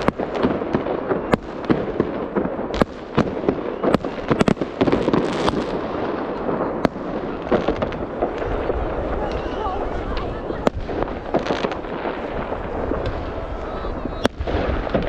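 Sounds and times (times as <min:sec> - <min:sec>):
fireworks bangs: 0:00.0 - 0:15.0
fireworks crackle: 0:00.0 - 0:15.0.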